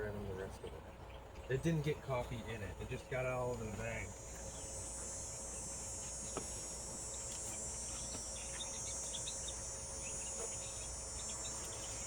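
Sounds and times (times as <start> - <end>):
high-pitched insect chorus: 3.9 - 12.0.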